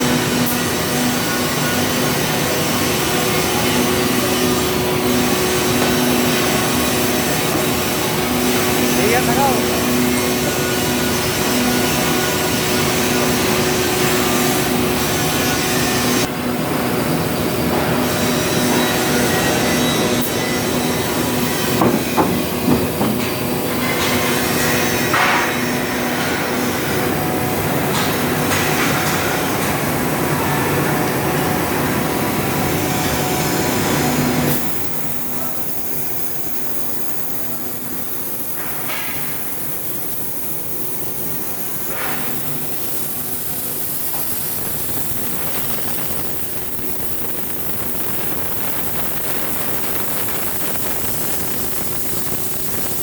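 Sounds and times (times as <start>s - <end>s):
drilling machine hiss: 34.0s - 53.0s.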